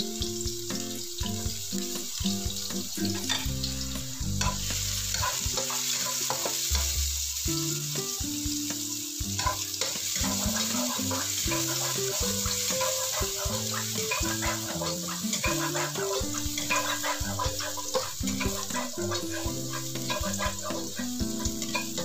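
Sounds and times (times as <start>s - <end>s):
garlic sizzling in oil: 0.0s - 22.0s
spatula scraping pan: 2.6s - 7.0s, 9.4s - 22.0s.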